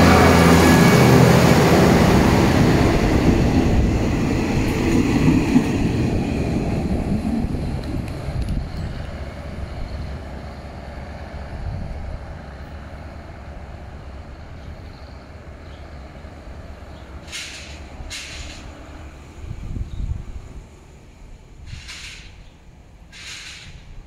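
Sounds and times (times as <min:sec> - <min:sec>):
diesel railcar pulling away: 0:00.0 - 0:24.0
short hisses: 0:23.1 - 0:23.9.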